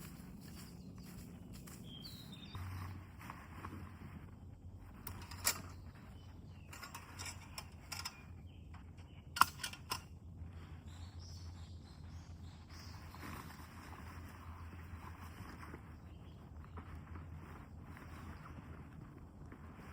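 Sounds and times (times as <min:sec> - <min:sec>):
low steady hum: 0:00.0 - 0:19.9
sharp clicks and knocks: 0:08.8 - 0:10.1.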